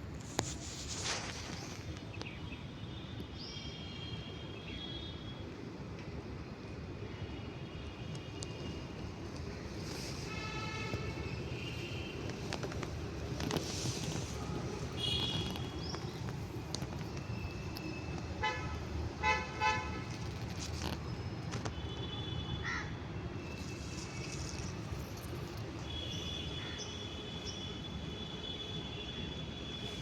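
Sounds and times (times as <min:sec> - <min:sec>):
street traffic rumbling: 0:00.0 - 0:30.0
vehicle horns tooting: 0:10.2 - 0:12.5, 0:14.0 - 0:15.8, 0:18.0 - 0:20.3.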